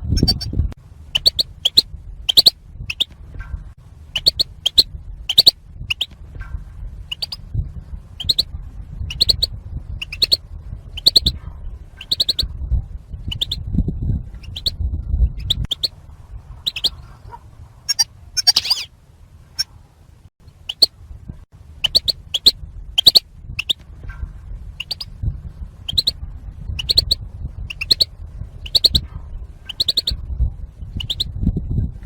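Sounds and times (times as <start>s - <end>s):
goldfinch chirps: 0.2s - 0.6s, 1.2s - 3.1s, 4.2s - 6.2s, 7.1s - 7.4s, 8.2s - 11.4s, 12.0s - 12.4s, 13.3s - 13.6s, 14.4s - 16.0s, 16.6s - 17.2s, 17.9s - 18.9s, 20.6s - 20.9s, 21.8s - 23.8s, 24.8s - 25.1s, 25.9s - 29.0s, 29.7s - 30.2s, 31.0s - 31.4s.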